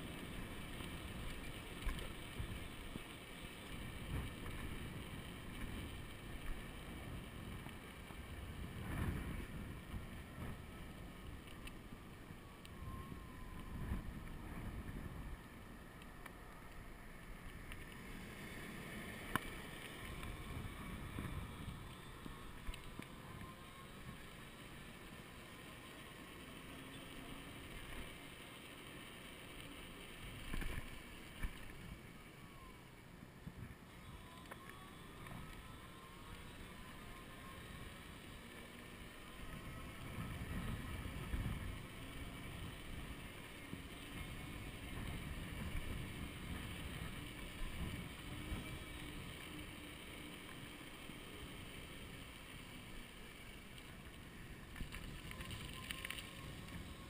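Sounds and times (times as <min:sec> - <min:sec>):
electric motor whine: 0:00.0 - 0:57.0
wind buffeting microphone: 0:03.6 - 0:15.8, 0:18.0 - 0:24.6, 0:39.2 - 0:50.4.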